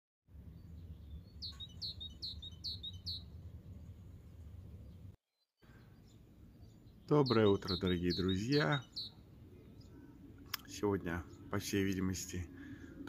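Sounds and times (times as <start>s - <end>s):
songbird singing: 0.3s - 13.0s
low steady rumble: 3.2s - 5.2s.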